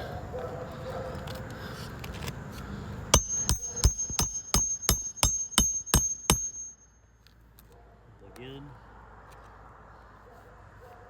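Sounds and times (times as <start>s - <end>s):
hammer striking metal: 3.2s - 7.0s.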